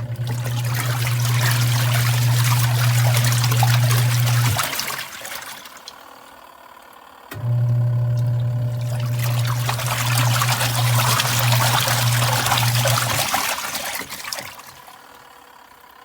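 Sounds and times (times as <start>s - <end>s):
water pouring through hose: 0.0s - 6.1s, 8.7s - 15.4s
drain pump humming: 0.0s - 16.0s.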